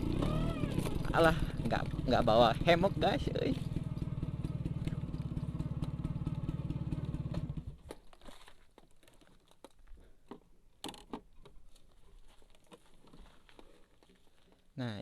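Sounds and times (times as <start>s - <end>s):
scooter engine idling: 0.0s - 7.8s.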